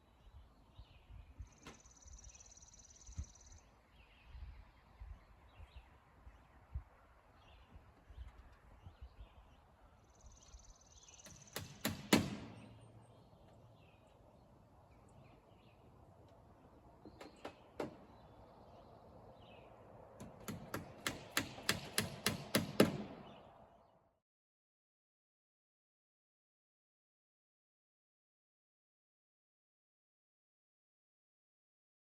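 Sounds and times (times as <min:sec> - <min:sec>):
faint birds chirping: 0:00.0 - 0:24.2
hammer driving nails: 0:11.1 - 0:12.9, 0:17.2 - 0:18.1, 0:20.2 - 0:23.3.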